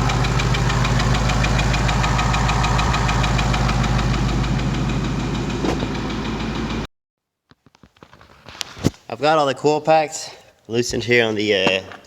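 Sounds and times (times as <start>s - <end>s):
car engine running: 0.0s - 6.9s
rapid knocking inside engine: 0.0s - 6.9s.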